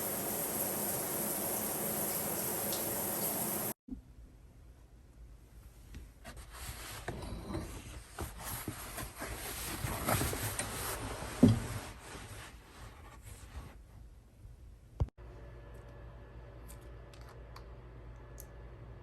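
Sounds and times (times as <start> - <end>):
rubbing and scraping on hard surface: 6.2 - 14.1.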